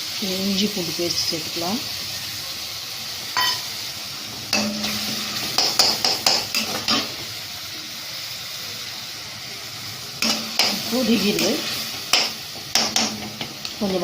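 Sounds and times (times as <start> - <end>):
food sizzling in oil: 0.0 - 14.0.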